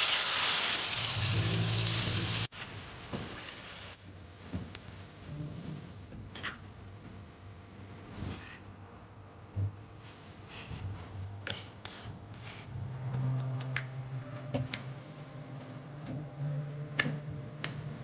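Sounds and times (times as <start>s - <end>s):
low steady hum: 9.0s - 18.0s.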